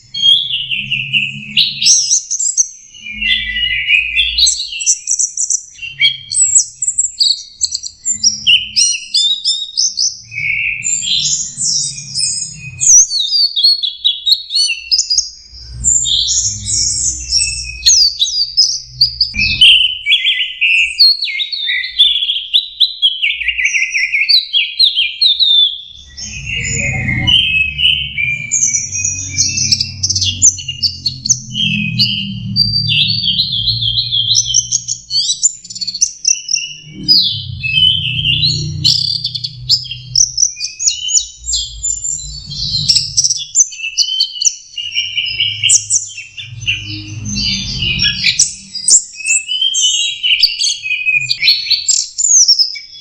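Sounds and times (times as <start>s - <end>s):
bird singing chirps and trills: 0.0s - 53.0s
low rumble: 26.0s - 34.6s, 36.8s - 40.4s, 46.5s - 48.6s.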